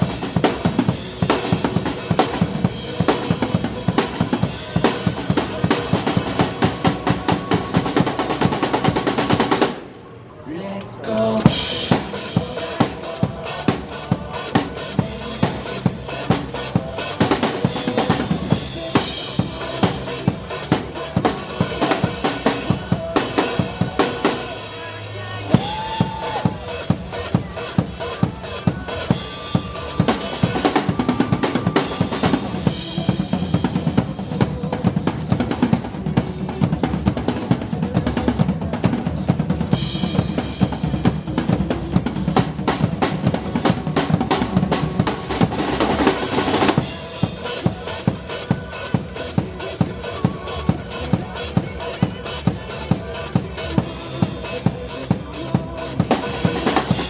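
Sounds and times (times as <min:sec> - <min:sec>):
pop-rock music: 0:00.0 - 0:09.9, 0:10.5 - 0:57.0
bass drum and snare beat: 0:25.5 - 0:57.0.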